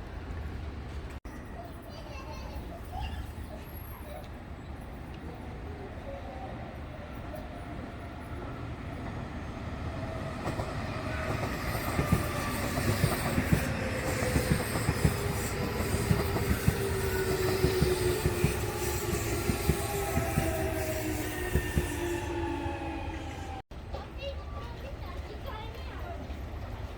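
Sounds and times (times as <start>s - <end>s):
electric train passing: 5.6s - 23.6s
train motor whine: 9.9s - 23.6s.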